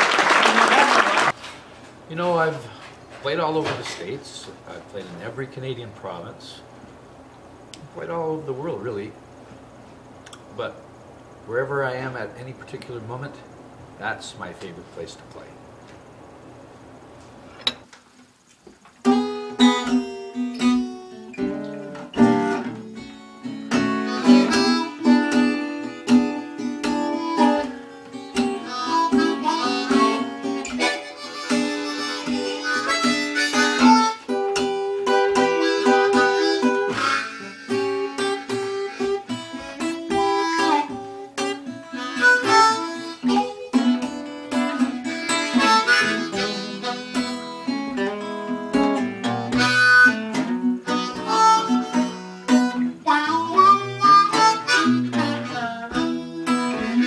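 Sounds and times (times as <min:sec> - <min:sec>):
blues harmonica: 0:19.0 - 0:57.0
plucked guitar: 0:19.0 - 0:57.0.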